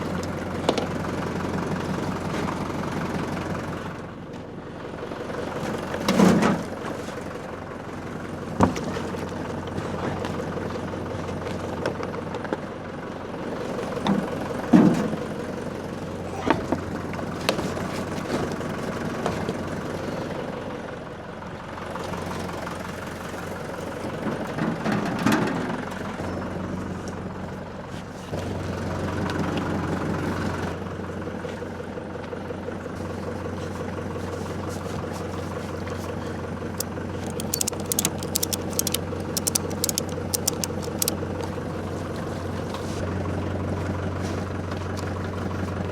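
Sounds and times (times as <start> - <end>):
tractor engine running: 0.0 - 20.6, 32.0 - 45.9
clicks and rattles: 36.8 - 41.2.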